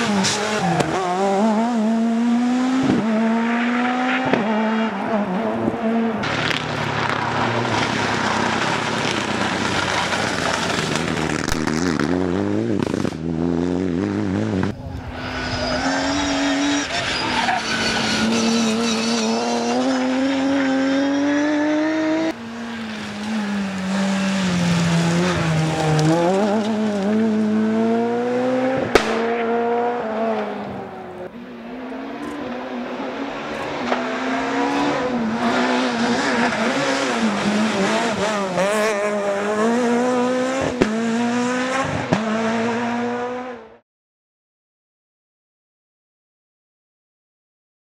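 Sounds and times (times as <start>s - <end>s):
rally car engines revving: 0.0s - 43.8s
sharp cracks: 6.2s - 12.2s, 28.9s - 29.3s
tyre squeal: 14.8s - 20.6s.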